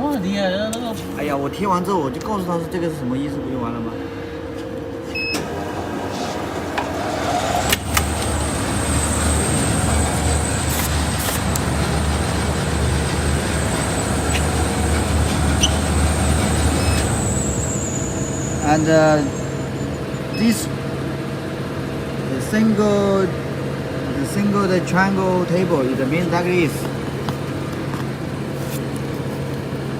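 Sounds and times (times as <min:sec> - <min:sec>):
thin high whine: 0:02.8 - 0:20.9
motor and conveyor noise: 0:05.0 - 0:21.0.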